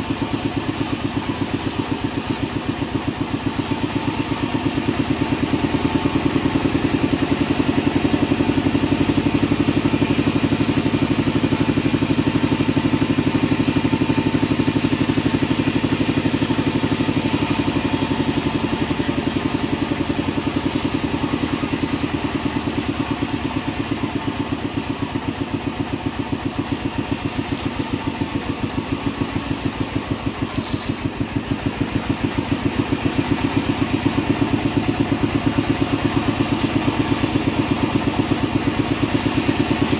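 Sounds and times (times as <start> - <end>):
band saw engine running: 0.0 - 39.9.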